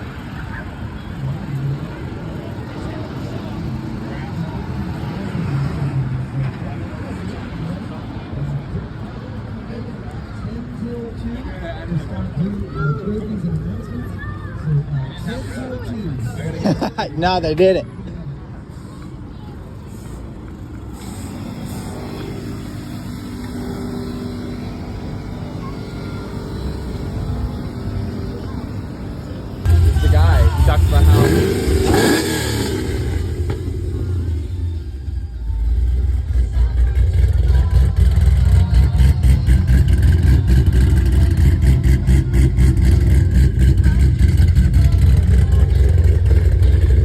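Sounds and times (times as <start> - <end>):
car engine running: 20.8 - 47.0.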